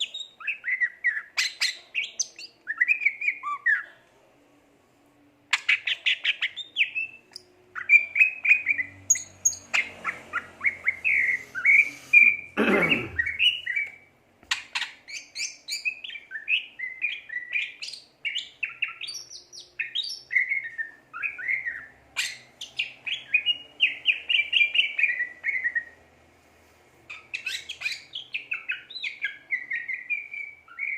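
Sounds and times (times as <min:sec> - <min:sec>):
bird singing chirps and whistles: 0:00.0 - 0:03.9, 0:05.6 - 0:07.2, 0:13.2 - 0:26.0, 0:27.1 - 0:30.9.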